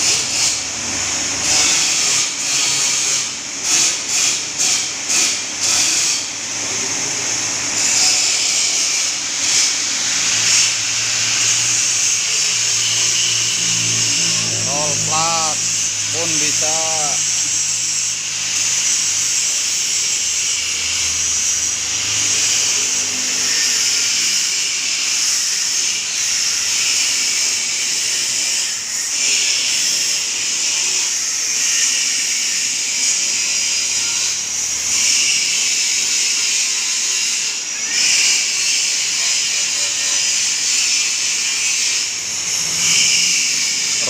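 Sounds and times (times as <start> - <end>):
plate rolling machine whining: 5.2 - 27.4.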